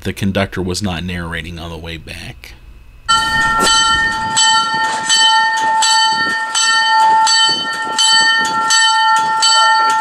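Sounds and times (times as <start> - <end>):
locomotive bell ringing: 3.1 - 10.0.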